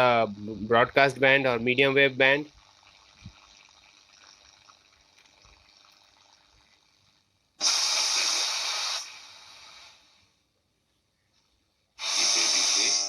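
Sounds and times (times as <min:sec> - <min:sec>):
weak radio station: 0:00.0 - 0:10.1, 0:12.0 - 0:13.0
radio hiss: 0:00.0 - 0:10.3, 0:12.0 - 0:13.0
loud static burst: 0:07.6 - 0:10.1, 0:12.0 - 0:13.0.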